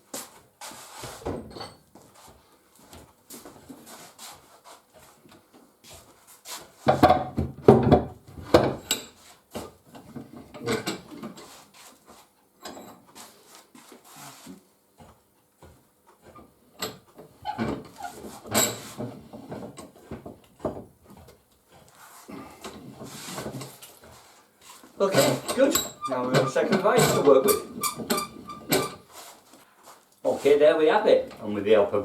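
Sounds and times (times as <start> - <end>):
bench vice knocking and scraping: 25.1 - 29.1.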